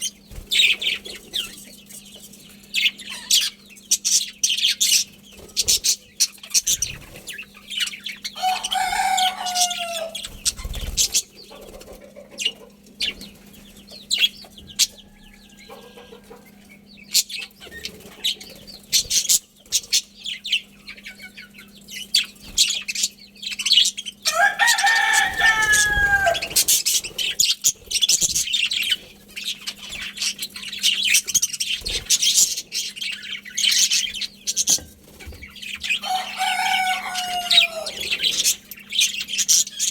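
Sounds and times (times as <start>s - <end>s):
budgies chirping and chattering: 0.0s - 39.9s
rooster crowing: 8.4s - 10.3s, 14.7s - 16.8s, 24.2s - 26.8s, 35.8s - 38.5s.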